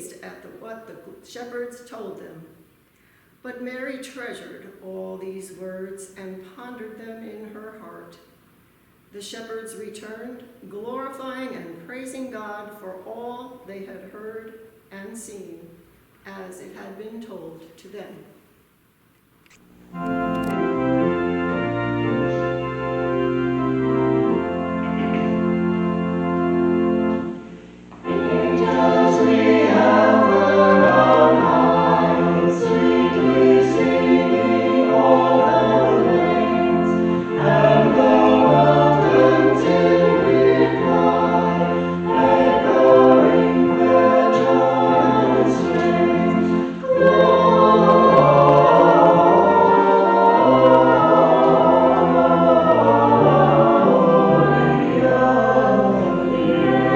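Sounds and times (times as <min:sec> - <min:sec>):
church organ chords: 0:19.9 - 0:56.9
choir singing a hymn: 0:20.0 - 0:27.4, 0:28.0 - 0:56.9.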